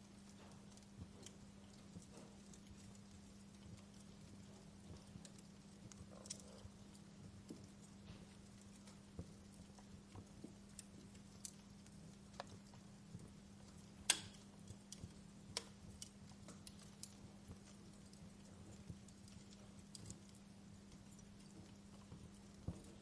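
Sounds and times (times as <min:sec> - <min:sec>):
faint low hum: 0:00.0 - 0:23.0
wood fire crackling: 0:00.0 - 0:23.0.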